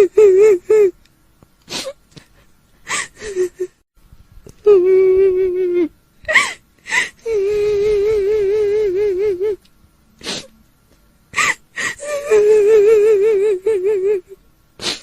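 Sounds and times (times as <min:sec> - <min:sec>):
woman wailing and sobbing: 0:00.0 - 0:00.9, 0:02.9 - 0:03.8, 0:04.6 - 0:09.6, 0:11.4 - 0:14.4.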